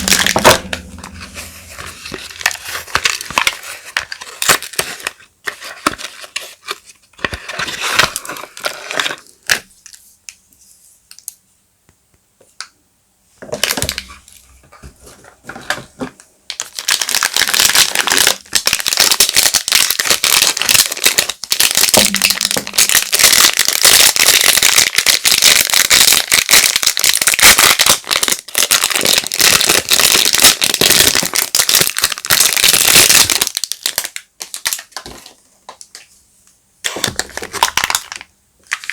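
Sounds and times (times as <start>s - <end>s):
wrapper crinkling: 0.0s - 10.0s, 16.5s - 36.1s, 36.9s - 38.9s.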